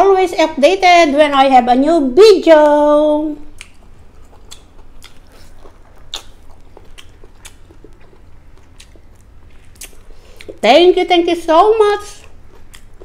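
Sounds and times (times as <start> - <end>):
person chewing food: 3.4 - 10.6, 12.2 - 13.0
wet mouth smacks and clicks: 3.6 - 10.6.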